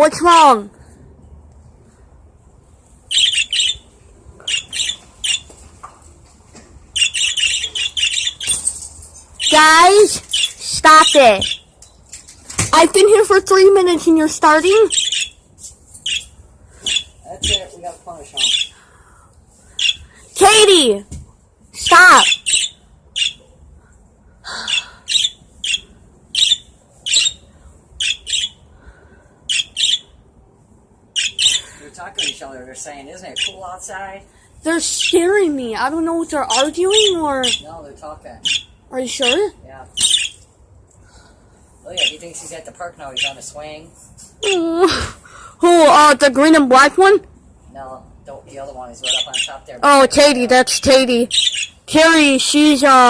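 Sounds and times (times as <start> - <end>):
birds squawking: 3.0 - 5.6, 6.9 - 8.7, 9.4 - 11.7, 13.0 - 21.0, 21.8 - 23.6, 24.5 - 30.2, 31.1 - 34.1, 34.7 - 41.3, 41.9 - 43.6, 48.6 - 53.0.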